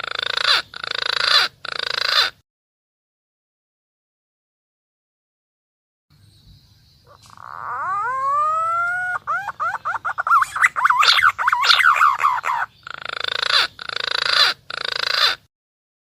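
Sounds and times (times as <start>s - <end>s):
pigeon call whistling and warbling: 7.1s - 15.4s.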